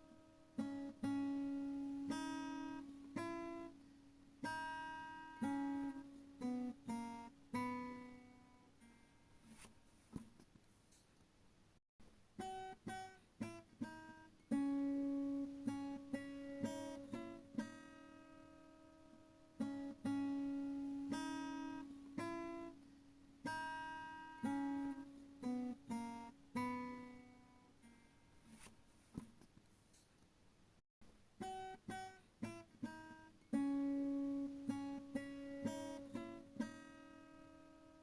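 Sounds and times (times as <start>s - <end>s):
acoustic guitar melody: 0.0s - 10.0s, 12.4s - 28.8s, 31.4s - 38.0s.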